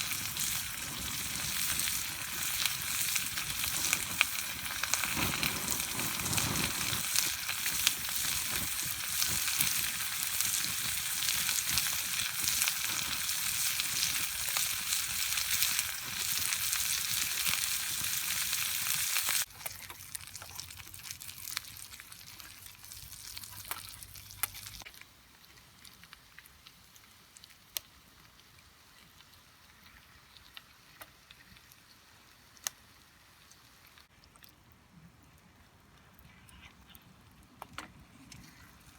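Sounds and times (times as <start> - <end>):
campfire snaps: 0.0 - 22.0, 32.6 - 32.8
food sizzling in a pan: 0.0 - 24.9.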